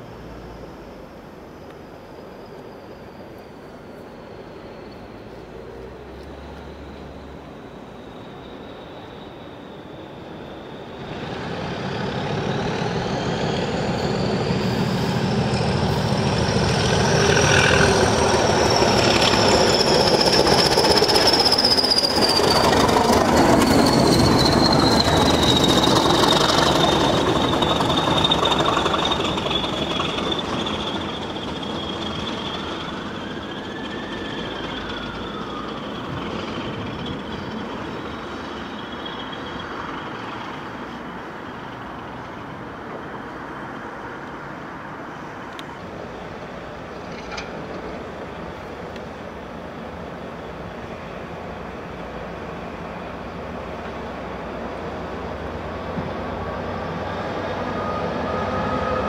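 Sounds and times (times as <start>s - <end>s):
train passing on rails: 0.0s - 59.0s.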